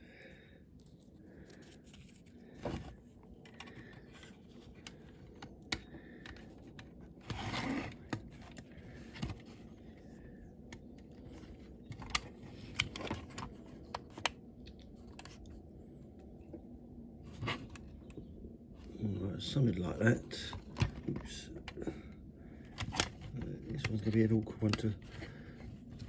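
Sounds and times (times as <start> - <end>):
model car parts clicking and scraping: 0.8 - 15.6, 20.3 - 26.0.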